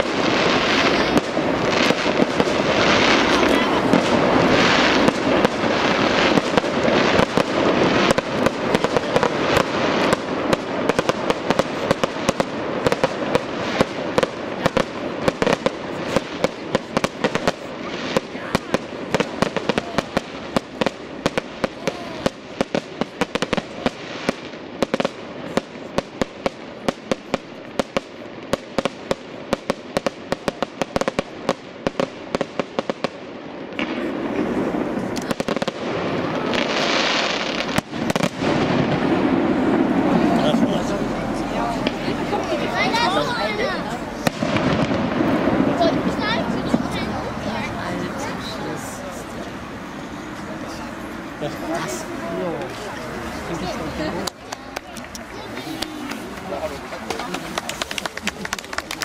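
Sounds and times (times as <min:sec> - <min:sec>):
fireworks bangs and crackles: 0:00.0 - 0:59.0
rushing noise: 0:35.8 - 0:54.0.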